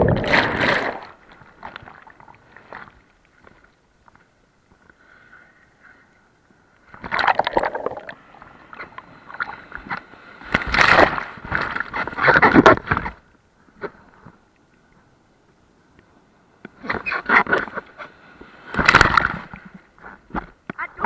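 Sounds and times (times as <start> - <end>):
sea water splashing: 0.0 - 3.0, 7.0 - 8.3.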